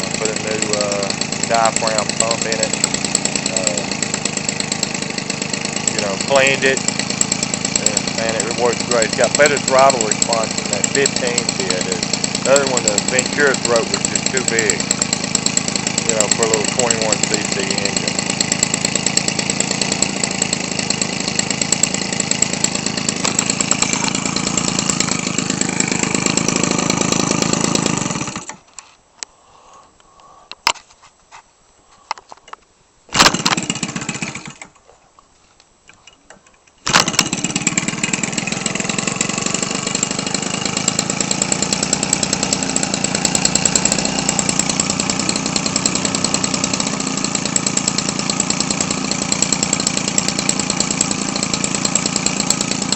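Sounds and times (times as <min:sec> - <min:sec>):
two-stroke engine with propeller: 0:00.0 - 0:28.7, 0:33.1 - 0:34.8, 0:36.8 - 0:52.9.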